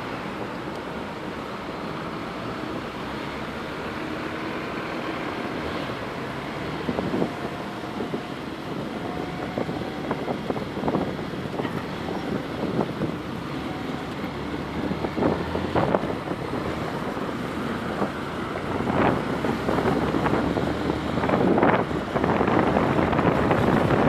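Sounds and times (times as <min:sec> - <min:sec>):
passing traffic: 0:00.0 - 0:24.0
wind on microphone: 0:05.9 - 0:24.0.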